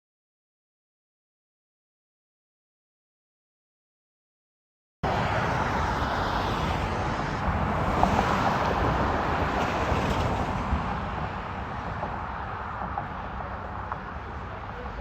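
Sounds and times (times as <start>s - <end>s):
vehicle rumble outdoors: 5.0s - 15.0s.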